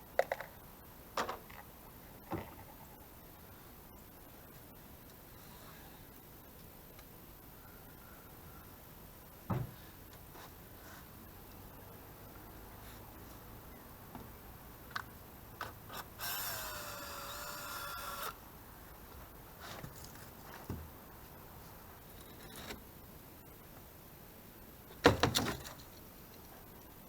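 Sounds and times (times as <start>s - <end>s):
power drill whine: 15.9s - 18.4s.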